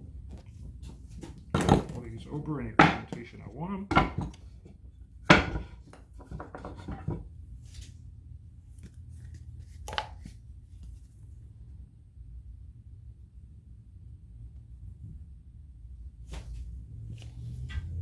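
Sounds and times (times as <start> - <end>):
wood knocking on workbench: 1.2 - 2.0, 2.8 - 3.3, 3.9 - 4.5, 5.3 - 7.2.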